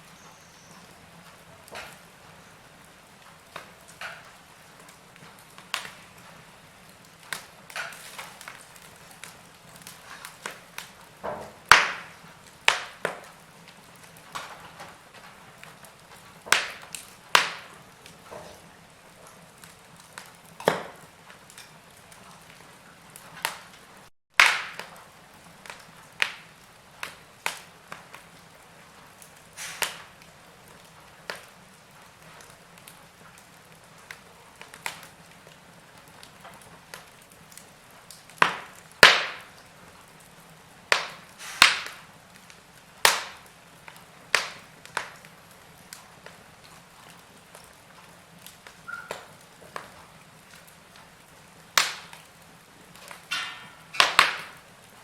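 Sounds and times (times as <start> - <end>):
logs crackling in a fireplace: 0.0 - 55.0.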